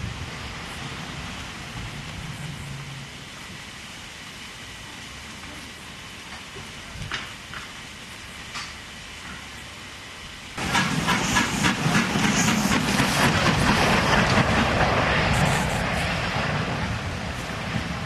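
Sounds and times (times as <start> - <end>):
steam train passing: 0.0 - 18.0
train wheels clicking: 6.3 - 7.8, 10.6 - 16.2.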